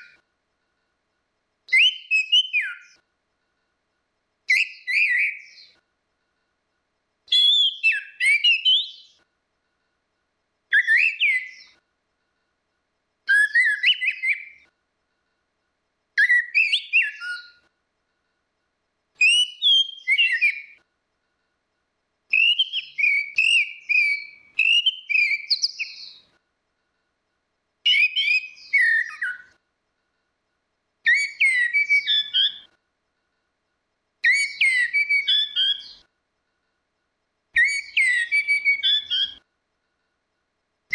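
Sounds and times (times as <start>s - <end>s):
thrush singing whistled phrases: 0.0s - 0.2s, 1.7s - 3.0s, 4.5s - 5.8s, 7.3s - 9.2s, 10.7s - 11.8s, 13.2s - 14.7s, 16.2s - 17.7s, 19.2s - 20.9s, 22.3s - 26.4s, 27.8s - 29.6s, 31.0s - 32.8s, 34.2s - 36.1s, 37.6s - 39.5s.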